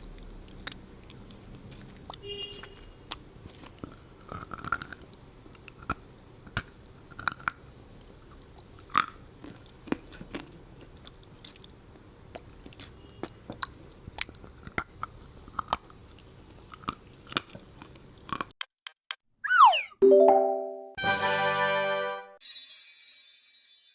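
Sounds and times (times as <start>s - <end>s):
person chewing crunchy food: 0.0s - 18.6s.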